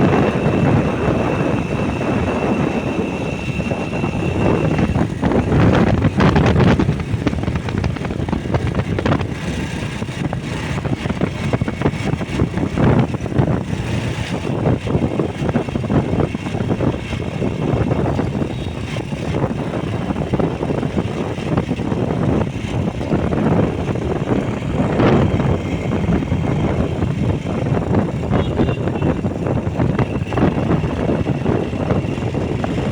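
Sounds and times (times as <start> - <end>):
road and wind noise: 0.0 - 32.9
wind gusts buffeting microphone: 0.0 - 32.9.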